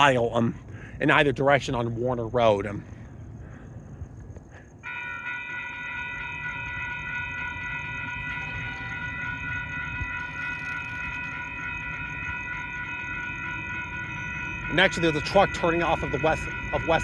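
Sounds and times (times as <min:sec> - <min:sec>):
locomotive air horn chord: 0:04.8 - 0:17.0.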